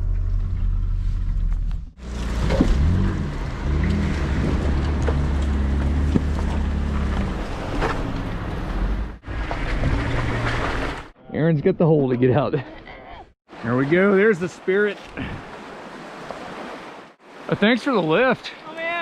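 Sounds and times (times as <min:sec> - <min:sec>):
off-road vehicle engine revving: 0:00.0 - 0:11.1.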